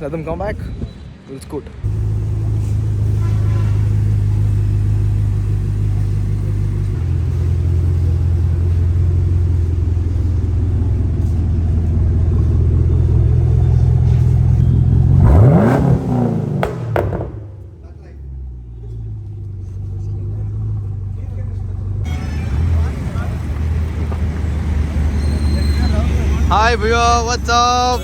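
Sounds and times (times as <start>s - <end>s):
engine idling: 1.9s - 15.7s, 16.6s - 28.0s
engine revving: 1.9s - 17.7s.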